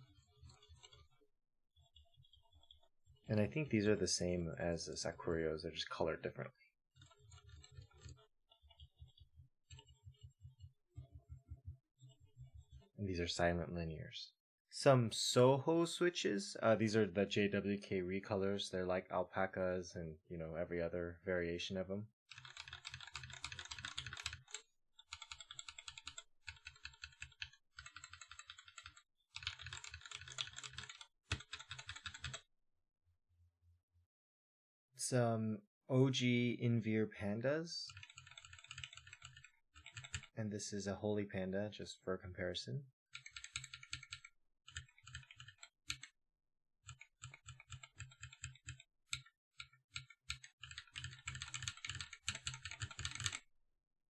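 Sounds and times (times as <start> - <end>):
typing on mechanical keyboard: 0.0 - 1.1, 22.3 - 32.4, 37.9 - 40.4, 43.2 - 46.1, 46.8 - 53.4.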